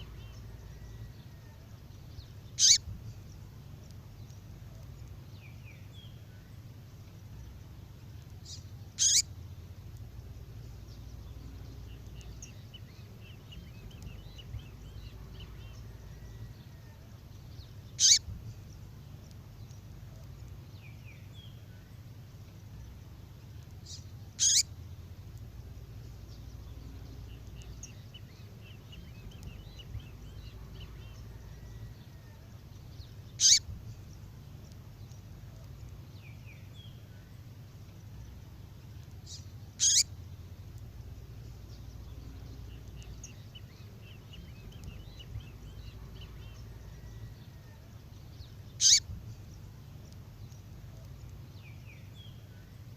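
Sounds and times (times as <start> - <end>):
faint bird twittering: 0.0 - 52.9
steady low hum: 0.0 - 52.9
sharp bird calls: 2.4 - 3.2, 8.4 - 9.4, 17.9 - 18.4, 23.8 - 24.8, 33.1 - 34.1, 39.2 - 40.3, 48.5 - 49.2.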